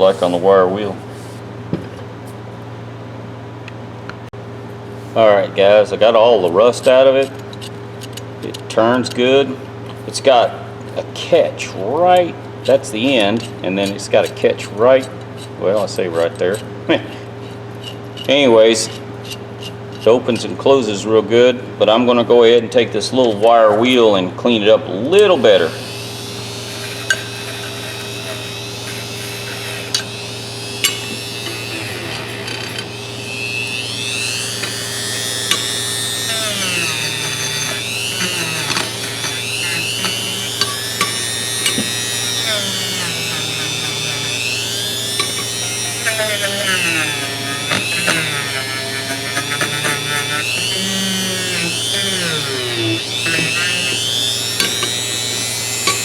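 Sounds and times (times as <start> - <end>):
wire wheel brush on metal: 12.2 - 20.2, 25.6 - 55.1.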